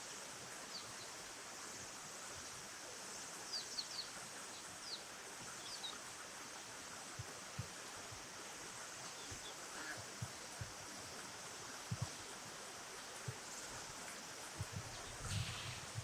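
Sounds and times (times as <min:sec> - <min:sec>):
flowing water: 0:00.0 - 0:16.0
small birds chirping: 0:03.4 - 0:06.2, 0:08.9 - 0:10.8
soft low thumps: 0:14.6 - 0:16.0.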